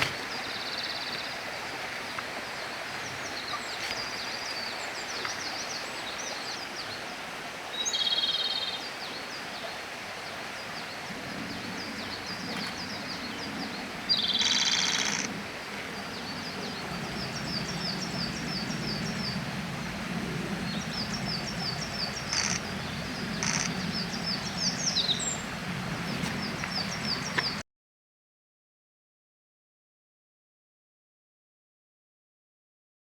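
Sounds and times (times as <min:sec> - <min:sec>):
bird trilling song: 0:14.1 - 0:15.3, 0:20.6 - 0:25.5.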